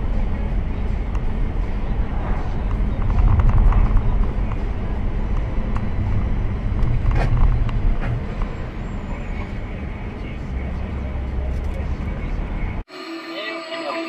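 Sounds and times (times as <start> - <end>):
car engine and road noise: 0.0 - 12.9.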